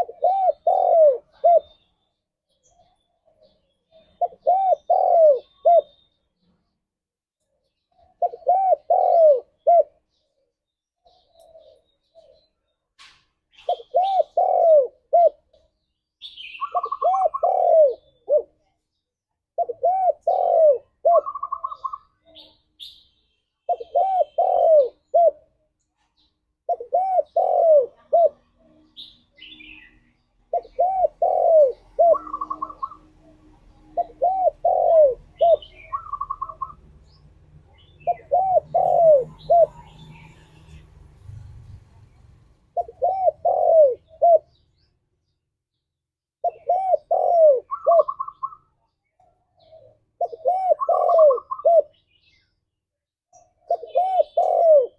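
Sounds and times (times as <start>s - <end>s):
dove cooing: 0.0s - 1.8s, 3.4s - 6.0s, 8.0s - 10.4s, 11.0s - 12.5s, 13.5s - 15.7s, 16.5s - 18.7s, 19.6s - 22.6s, 23.7s - 25.6s, 26.2s - 40.8s, 42.7s - 44.6s, 46.4s - 48.7s, 49.3s - 52.0s, 53.4s - 54.9s.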